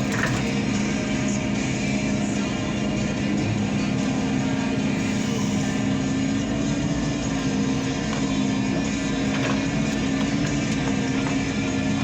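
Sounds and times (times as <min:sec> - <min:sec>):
excavator diesel engine running: 0:00.0 - 0:12.0
music playing: 0:00.0 - 0:12.0.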